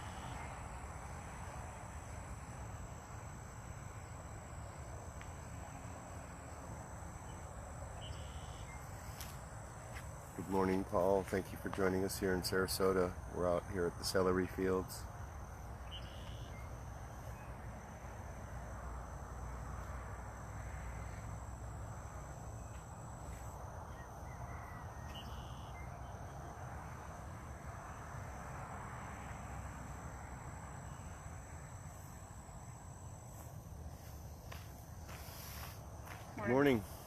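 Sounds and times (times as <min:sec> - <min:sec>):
insects trilling: 0:00.0 - 0:37.0
faint bird chirps: 0:07.2 - 0:08.9, 0:15.8 - 0:17.6, 0:23.9 - 0:26.4.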